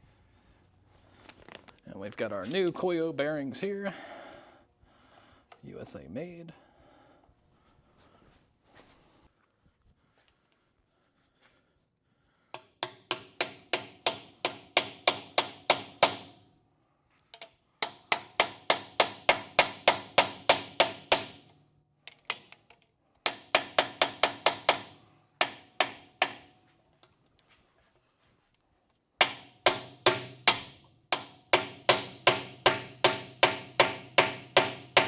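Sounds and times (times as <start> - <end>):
hammer striking metal: 12.6 - 16.5, 17.4 - 26.7, 29.2 - 35.0.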